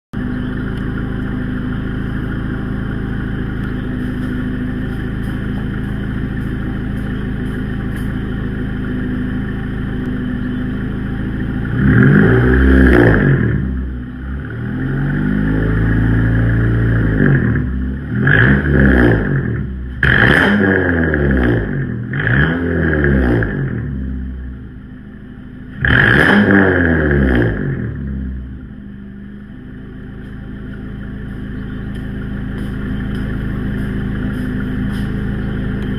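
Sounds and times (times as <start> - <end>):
car engine idling and revving: 0.1 - 35.9.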